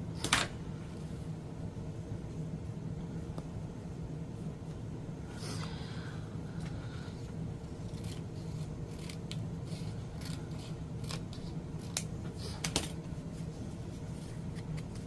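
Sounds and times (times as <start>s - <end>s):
air conditioner hum: 0.0s - 15.0s
scissors snipping paper: 7.8s - 12.9s.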